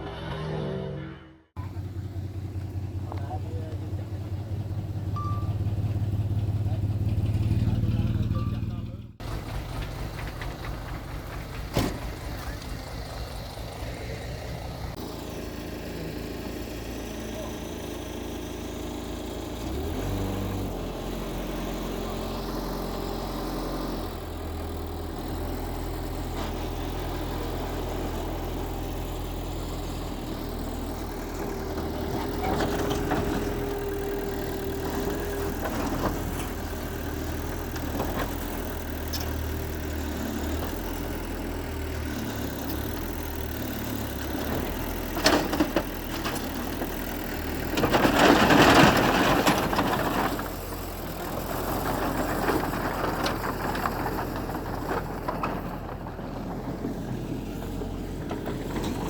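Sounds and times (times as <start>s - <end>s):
high engine whine: 0.0s - 20.2s
heavy diesel machinery running: 0.0s - 59.0s.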